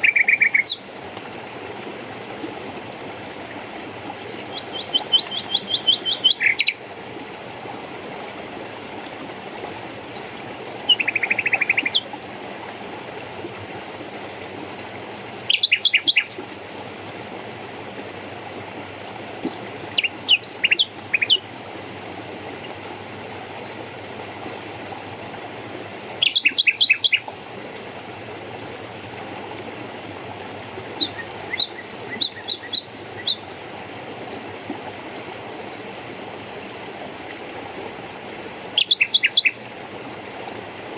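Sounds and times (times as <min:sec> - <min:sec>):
running water: 0:00.0 - 0:40.9
songbirds chirping: 0:04.4 - 0:06.8, 0:13.5 - 0:16.4, 0:19.4 - 0:21.5, 0:23.5 - 0:27.3, 0:36.6 - 0:39.6.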